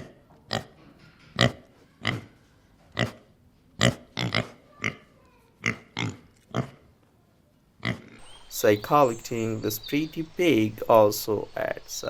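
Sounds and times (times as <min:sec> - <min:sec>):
pig grunting: 0:03.8 - 0:05.0.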